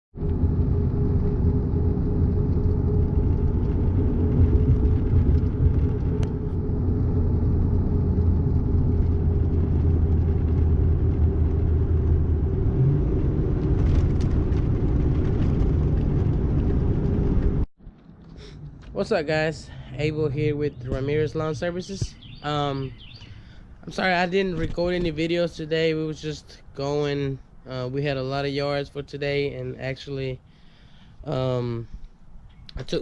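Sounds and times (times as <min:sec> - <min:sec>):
engine running: 0:00.2 - 0:26.4.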